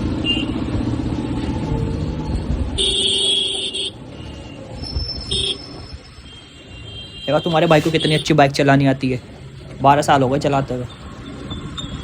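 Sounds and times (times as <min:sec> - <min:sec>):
vehicle horn: 0:02.8 - 0:04.0, 0:06.3 - 0:08.4.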